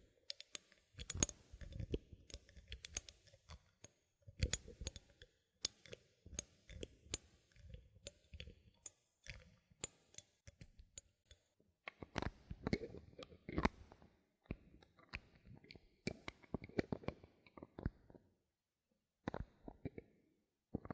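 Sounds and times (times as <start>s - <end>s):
bottle caps clicking and tapping: 0.3s - 1.4s, 2.8s - 3.2s.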